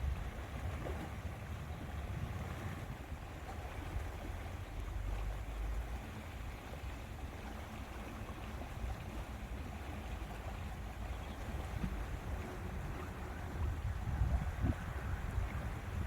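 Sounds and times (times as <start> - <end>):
wind buffeting microphone: 0.0 - 3.4, 10.4 - 16.0
water lapping at shore: 0.0 - 16.0.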